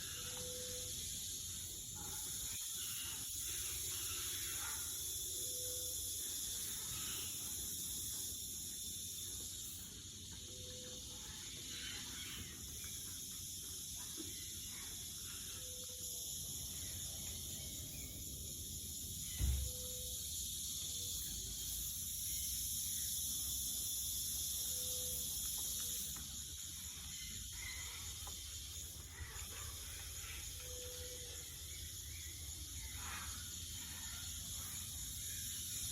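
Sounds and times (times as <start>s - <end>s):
high-pitched insect drone: 0.0s - 35.9s
thump: 19.4s - 19.7s.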